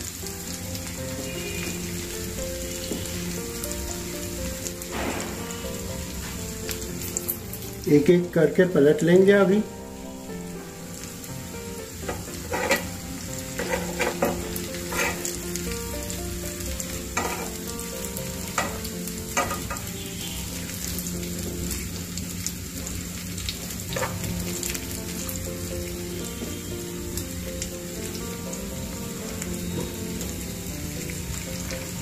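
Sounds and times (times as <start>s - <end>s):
food sizzling in oil: 0.0s - 32.0s
spatula scraping a pan: 12.1s - 15.5s, 17.2s - 17.6s, 23.9s - 24.2s.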